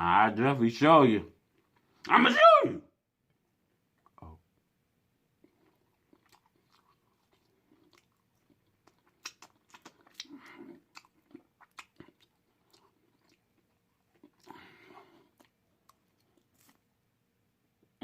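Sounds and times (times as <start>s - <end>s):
person chewing wetly: 5.4s - 16.9s
lip smacks: 8.8s - 13.4s.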